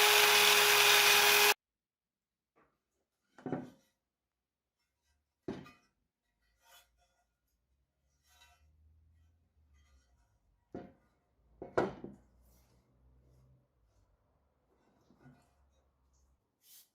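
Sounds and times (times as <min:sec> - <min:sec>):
power tool whining: 0:00.0 - 0:01.6.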